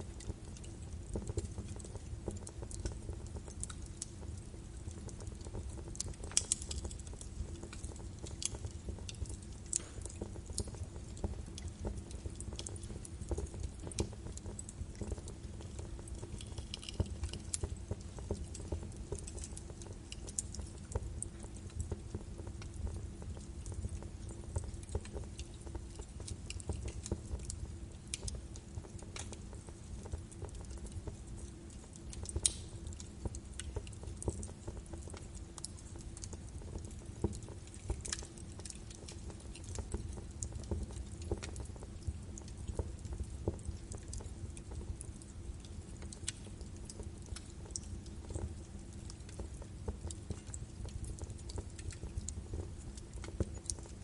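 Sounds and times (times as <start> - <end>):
logs crackling in a fireplace: 0.0 - 54.0.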